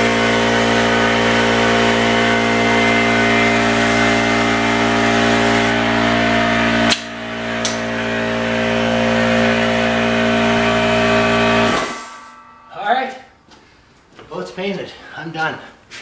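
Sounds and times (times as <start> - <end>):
electric motor running: 0.0 - 12.6
sharp click: 6.9 - 7.8.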